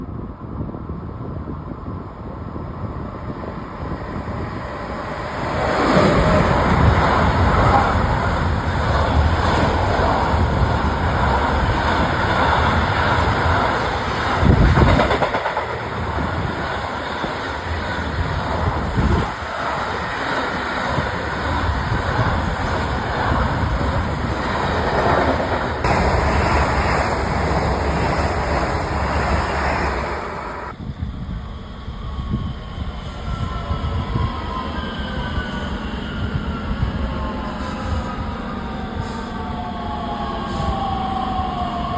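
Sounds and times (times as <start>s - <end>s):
train passing rumble: 0.0s - 41.9s
sharp train jolts: 5.7s - 30.7s.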